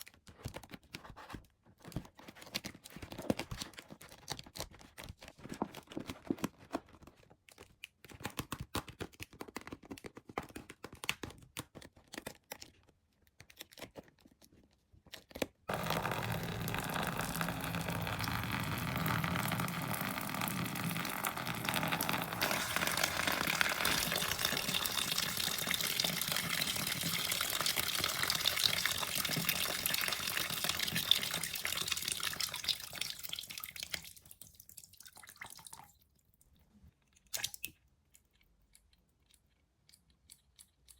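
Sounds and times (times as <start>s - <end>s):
water pouring into a container: 15.7s - 36.0s.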